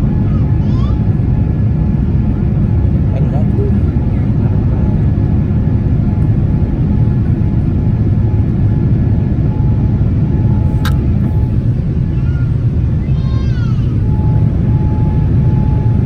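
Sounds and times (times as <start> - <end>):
airplane cabin engine rumble: 0.0 - 16.0
brief click: 10.8 - 11.0.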